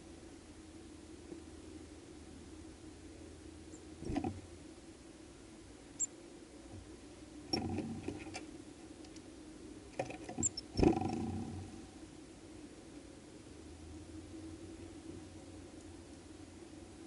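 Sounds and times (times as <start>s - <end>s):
birds tapping on a seed feeder: 4.0s - 4.4s, 10.0s - 11.4s.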